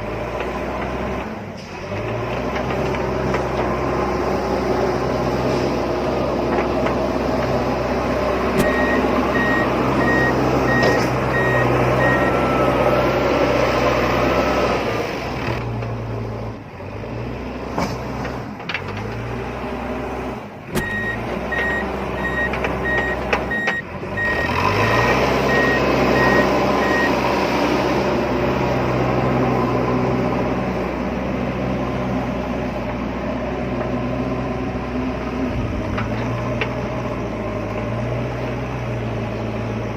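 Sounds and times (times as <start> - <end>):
reversing beeper: 8.6 - 13.2, 20.8 - 27.2.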